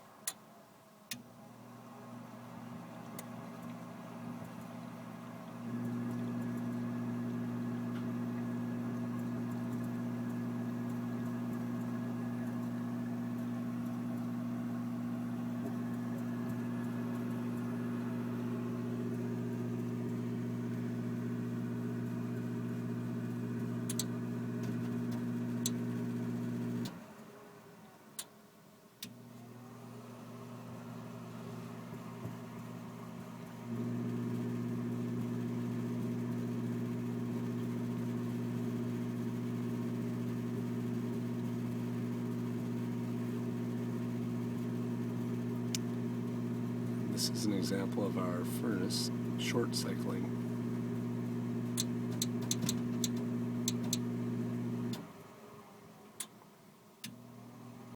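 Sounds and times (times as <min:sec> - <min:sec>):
furnace humming: 0:01.1 - 0:27.1, 0:29.0 - 0:56.3, 0:57.0 - 0:57.9
sharp clicks: 0:51.8 - 0:54.1.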